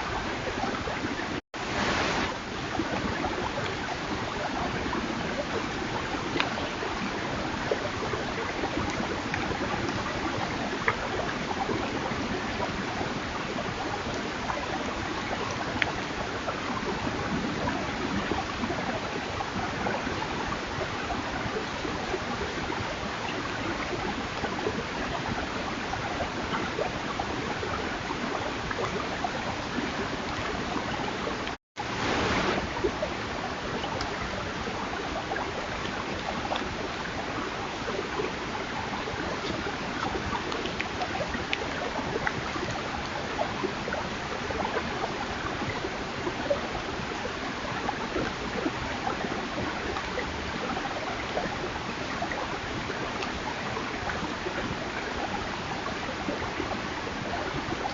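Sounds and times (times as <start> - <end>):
steady rushing hiss: 31.8 - 32.7.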